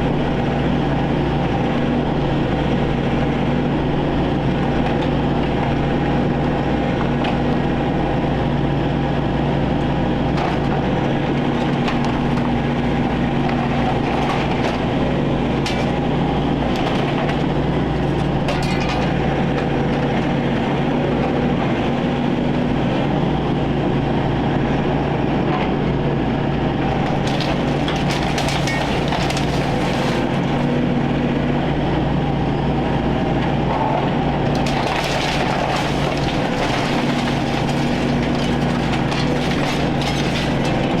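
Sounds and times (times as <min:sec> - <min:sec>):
excavator engine running: 0:00.0 - 0:41.0
wood cracking and snapping: 0:11.4 - 0:18.7, 0:26.9 - 0:31.2, 0:34.5 - 0:41.0.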